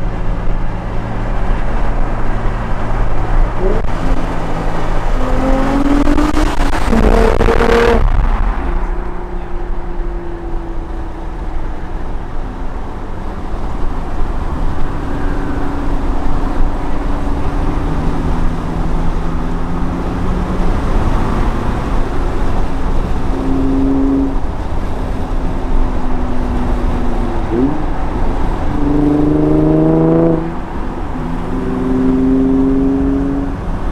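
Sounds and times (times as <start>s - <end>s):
car engine deep drone: 0.0s - 33.9s.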